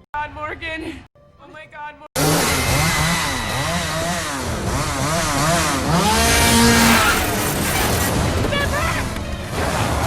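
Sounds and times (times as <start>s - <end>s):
chainsaw engine revving: 2.2s - 10.0s.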